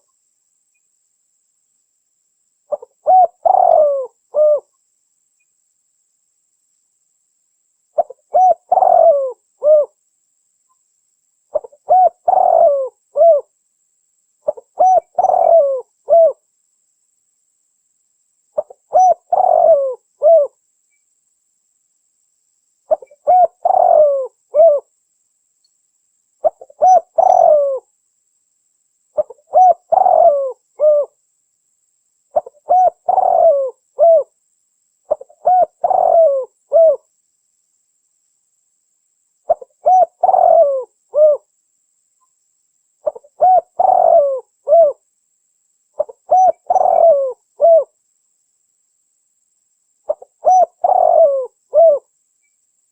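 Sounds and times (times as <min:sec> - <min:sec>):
dove cooing: 0:02.7 - 0:04.7, 0:08.0 - 0:10.0, 0:11.5 - 0:13.5, 0:14.4 - 0:16.4, 0:18.6 - 0:20.6, 0:22.9 - 0:24.9, 0:26.4 - 0:27.9, 0:29.2 - 0:31.2, 0:32.3 - 0:34.3, 0:35.1 - 0:37.0, 0:39.5 - 0:41.5, 0:43.0 - 0:45.0, 0:46.0 - 0:48.0, 0:50.1 - 0:52.1.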